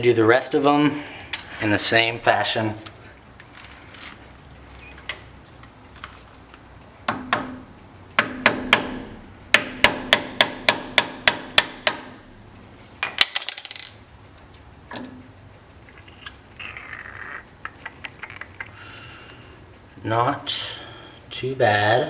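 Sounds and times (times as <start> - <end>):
hammer tapping on metal: 7.1 - 7.6, 8.2 - 12.1.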